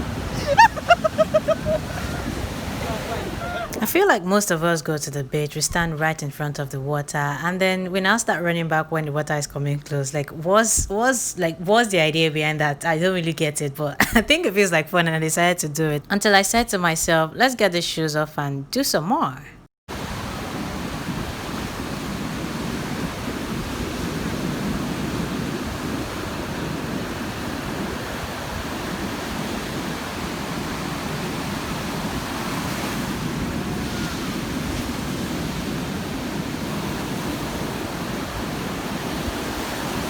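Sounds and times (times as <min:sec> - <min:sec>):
wind on microphone: 0:00.0 - 0:03.8, 0:20.0 - 0:40.0
ocean surf breaking: 0:00.0 - 0:04.0, 0:19.9 - 0:40.0.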